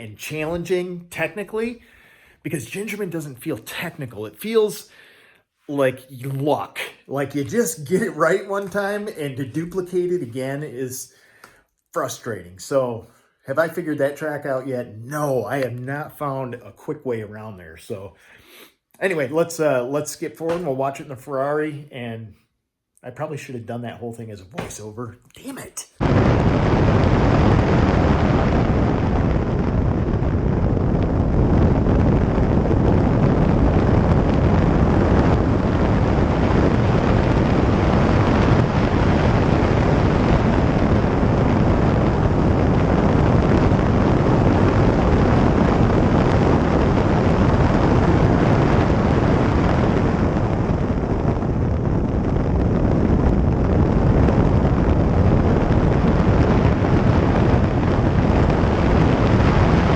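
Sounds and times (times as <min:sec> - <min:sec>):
wind buffeting microphone: 0:26.0 - 0:59.9.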